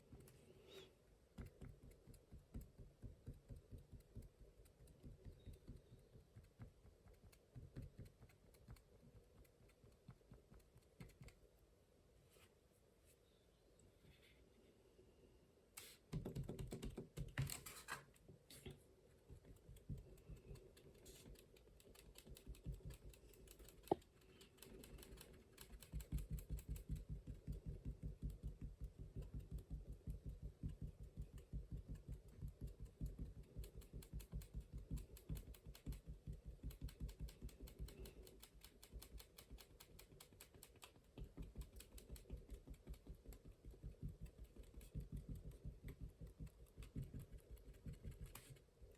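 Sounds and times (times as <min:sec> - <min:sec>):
brush tapping on paper: 0:01.3 - 0:11.4, 0:25.2 - 0:48.8.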